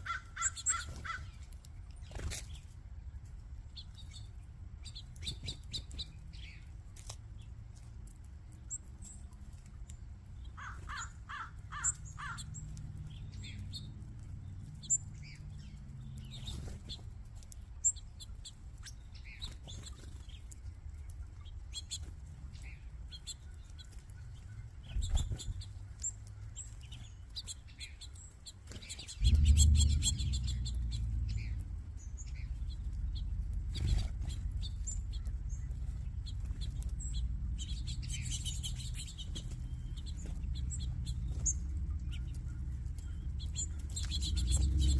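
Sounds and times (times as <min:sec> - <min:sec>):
small birds chirping and twittering: 0:00.0 - 0:44.9
quick repeated bird notes: 0:21.7 - 0:44.9
low rushing noise: 0:29.2 - 0:35.4.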